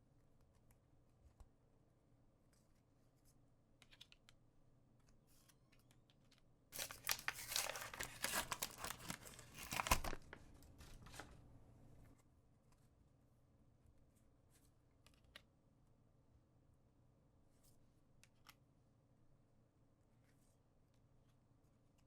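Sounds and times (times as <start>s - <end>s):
plastic wrapper tearing: 6.8s - 11.2s.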